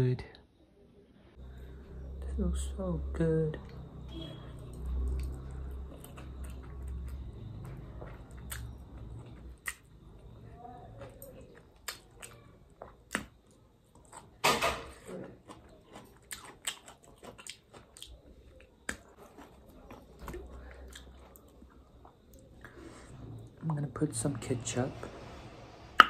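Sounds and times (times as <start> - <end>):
chewing noodles: 4.5 - 10.3, 10.9 - 14.4, 15.0 - 23.2.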